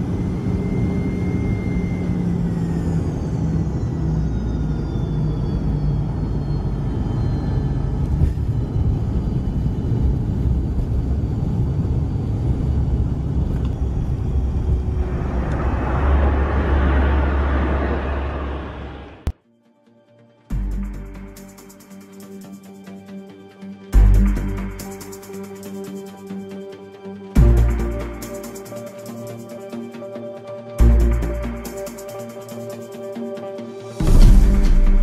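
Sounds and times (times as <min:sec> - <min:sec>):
jet engines winding down: 0:00.0 - 0:19.3, 0:20.6 - 0:35.0
rush of noise: 0:11.4 - 0:19.3.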